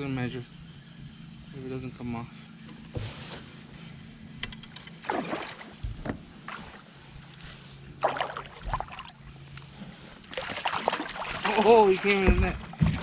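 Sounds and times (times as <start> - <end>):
water splashing: 5.0 - 5.8, 8.0 - 9.2, 10.2 - 13.0.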